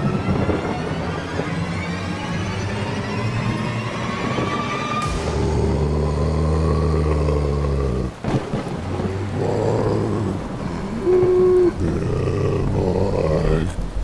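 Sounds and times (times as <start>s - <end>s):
low steady drone: 0.0s - 14.0s
rain: 0.0s - 14.0s
rumbling thunder: 5.0s - 14.0s
zombie growling moan: 5.1s - 8.2s, 9.1s - 14.0s.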